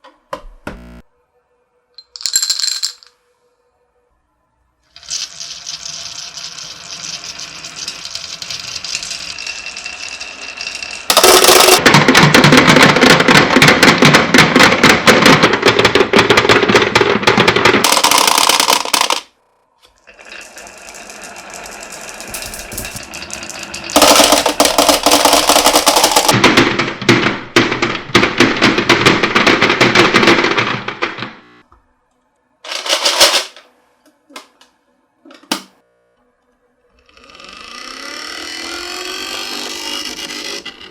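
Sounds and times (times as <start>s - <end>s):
marbles clattering down wooden run: 5.0s - 14.2s, 15.1s - 19.3s, 20.2s - 26.6s.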